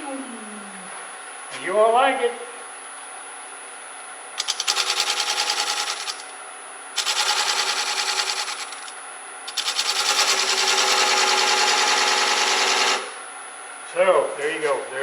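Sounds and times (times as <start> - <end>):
lathe tool chatter: 9.5 - 13.2.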